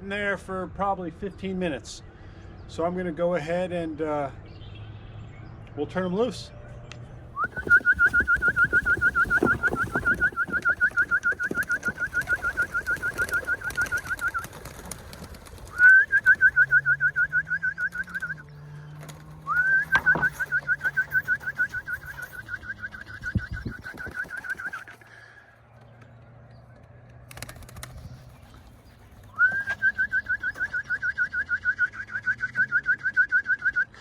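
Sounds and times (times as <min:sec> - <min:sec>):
loud trilled whistle: 0:07.4 - 0:14.5, 0:15.7 - 0:18.5, 0:19.5 - 0:24.9, 0:29.4 - 0:34.0.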